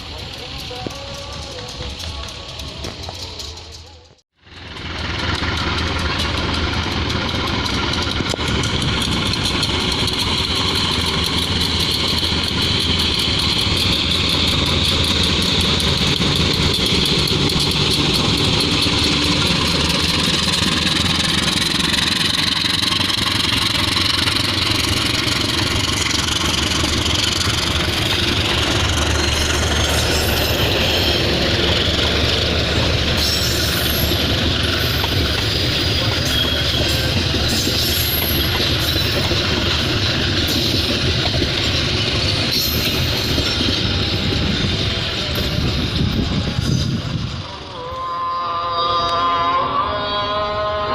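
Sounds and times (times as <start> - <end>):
train running with high hiss: 0.0 - 50.9.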